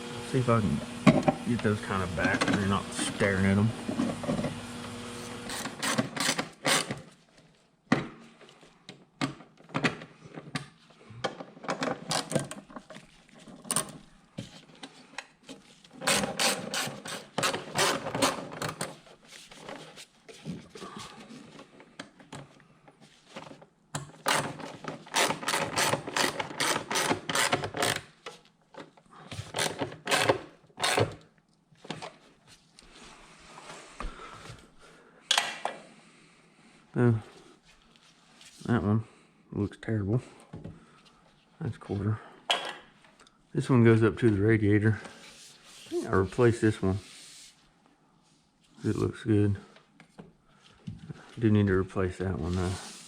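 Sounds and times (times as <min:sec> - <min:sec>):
hand tool rapid sharp clicks: 0:05.5 - 0:06.9, 0:16.1 - 0:18.4, 0:25.1 - 0:28.1
rubbing and scraping: 0:52.4 - 0:53.0.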